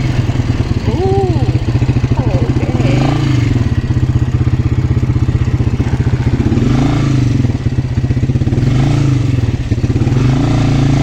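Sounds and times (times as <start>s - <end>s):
quad bike engine running: 0.0s - 11.0s.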